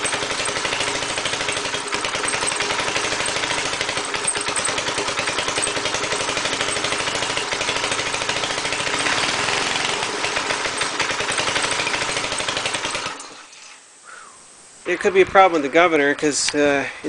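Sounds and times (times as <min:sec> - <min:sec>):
compressor engine running rough: 0:00.0 - 0:13.4.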